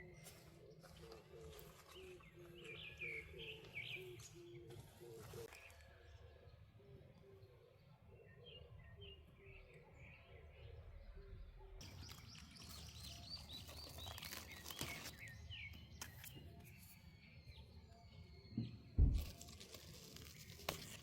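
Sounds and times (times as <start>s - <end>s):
birds chirping: 0.0s - 21.0s
loud low thump: 19.0s - 19.3s.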